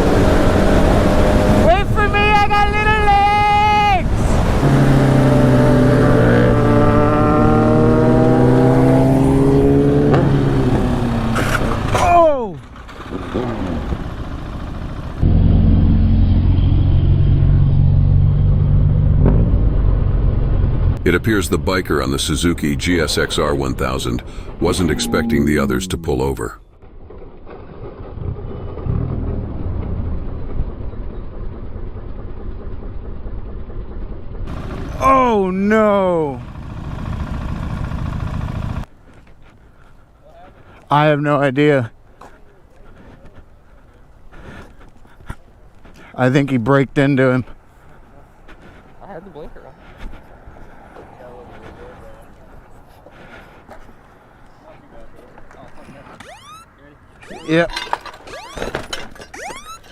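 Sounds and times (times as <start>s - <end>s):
motorcycle engine accelerating: 0.0s - 2.0s, 4.3s - 21.0s, 24.1s - 38.9s, 57.2s - 57.6s
wind and road noise: 0.0s - 59.9s
motorcycle engine running: 12.6s - 17.8s, 28.1s - 38.9s.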